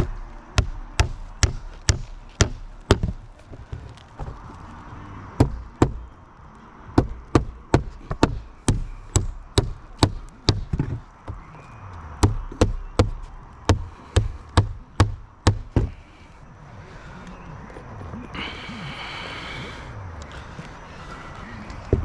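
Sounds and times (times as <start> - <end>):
hammer striking roofing nails: 0.0 - 3.3, 5.4 - 6.1, 7.0 - 11.5, 12.2 - 16.0.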